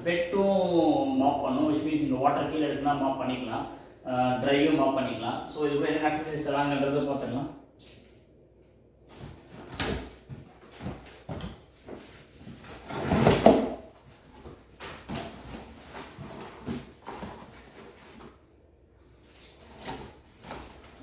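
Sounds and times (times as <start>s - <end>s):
cardboard packaging handled: 9.1s - 18.4s.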